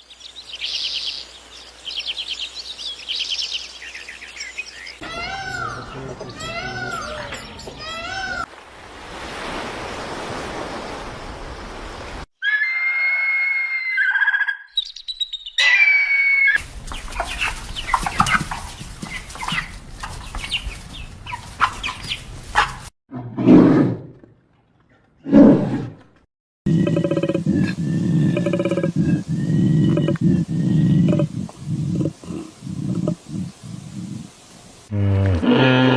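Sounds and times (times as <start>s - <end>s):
steady animal hiss: 27.2s - 35.1s.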